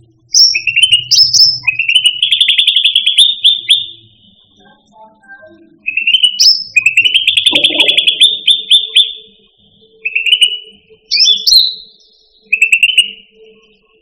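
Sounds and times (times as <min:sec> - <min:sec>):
songbird singing trills and whistles: 0:00.0 - 0:14.0.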